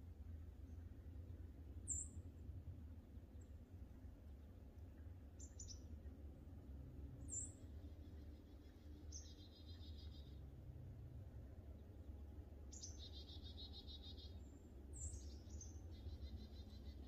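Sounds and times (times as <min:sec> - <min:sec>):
faint bird chirps: 0:01.8 - 0:02.2, 0:05.3 - 0:06.0, 0:07.2 - 0:10.5, 0:12.7 - 0:17.0.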